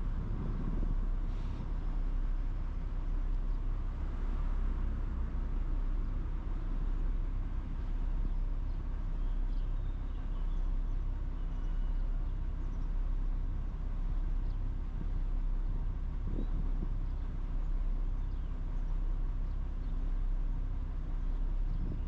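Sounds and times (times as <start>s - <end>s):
low vehicle rumble: 0.0s - 22.0s.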